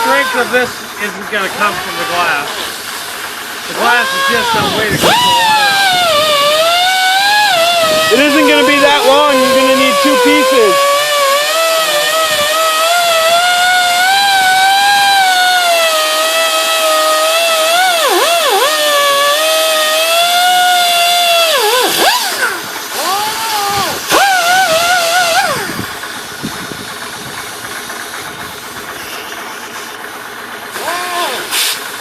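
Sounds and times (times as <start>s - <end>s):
electric power tool whining: 0.0s - 32.0s.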